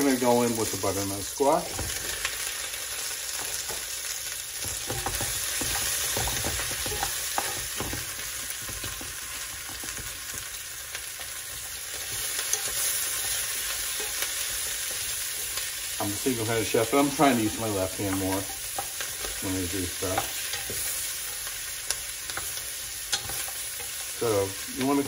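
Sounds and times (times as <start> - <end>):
vegetables sizzling in hot oil: 0.0 - 25.0
wooden spoon scraping pot: 4.6 - 10.4, 11.6 - 25.0.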